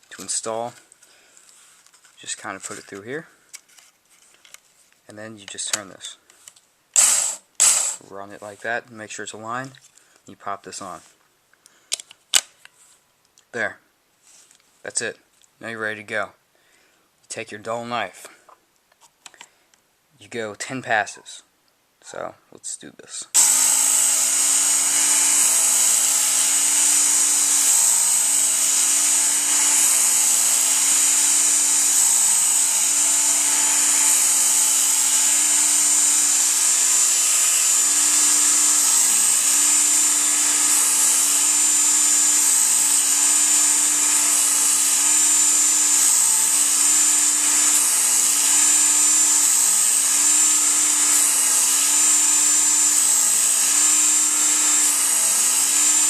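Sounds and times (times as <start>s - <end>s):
electric belt knife sharpener: 7.0s - 8.0s, 23.4s - 56.0s.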